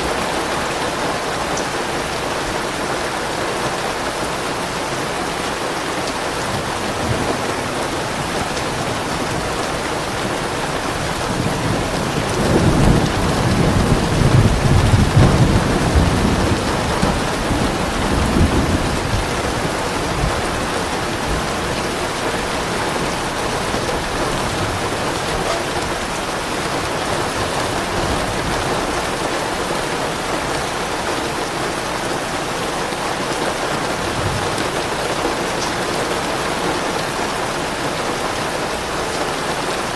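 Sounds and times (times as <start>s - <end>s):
steady rainfall: 0.0s - 39.9s
thunder rumbling: 5.7s - 39.9s.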